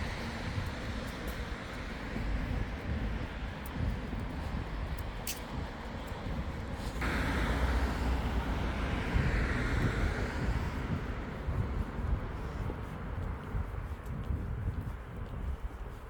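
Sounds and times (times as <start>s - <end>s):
street traffic: 0.0s - 16.0s
wind rumbling on microphone: 0.0s - 16.0s
passing vehicle tyre hiss: 6.8s - 10.9s.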